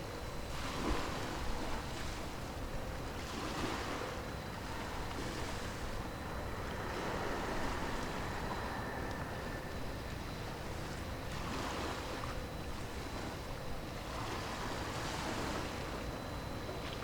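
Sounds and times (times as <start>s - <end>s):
wind: 0.0s - 17.0s
sea waves washing in: 3.0s - 13.4s.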